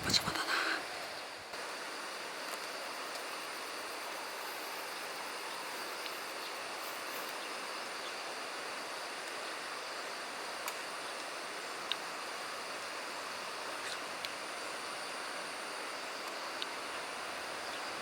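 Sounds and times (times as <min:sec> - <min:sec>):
faint ticks: 0:02.4 - 0:03.5, 0:05.4 - 0:07.4, 0:16.2 - 0:16.8.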